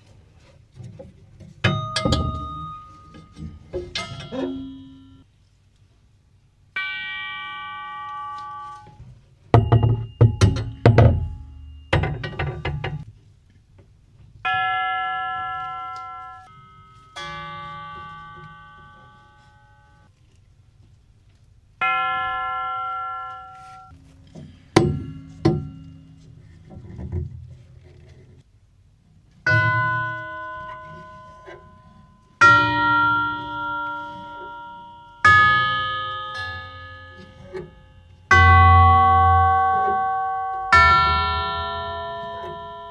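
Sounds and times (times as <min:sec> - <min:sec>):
loud knocks and clanks: 0:00.9 - 0:04.4, 0:09.5 - 0:13.1, 0:24.2 - 0:26.0
clock chime tubes ringing: 0:06.8 - 0:09.0, 0:14.5 - 0:20.1, 0:21.8 - 0:24.0, 0:29.5 - 0:42.9.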